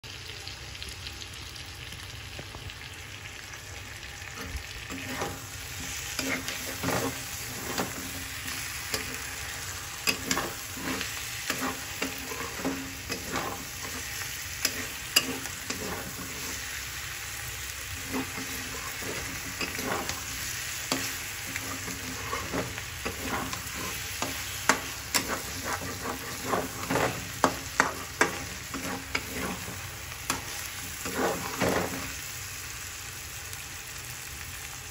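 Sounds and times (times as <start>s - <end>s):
chicken and onions sizzling in oil: 0.0s - 34.9s
metal spatula scraping a pan: 4.4s - 17.2s, 17.9s - 32.2s.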